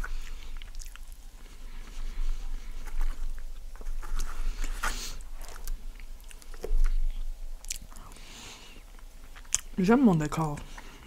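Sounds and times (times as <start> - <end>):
close chewing food: 0.0 - 11.0.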